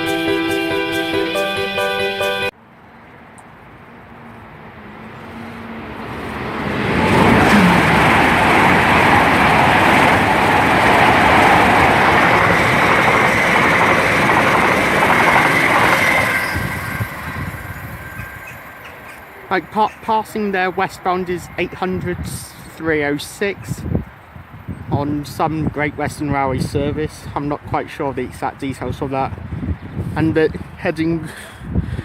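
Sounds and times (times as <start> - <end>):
train passing at speed: 3.6 - 22.5.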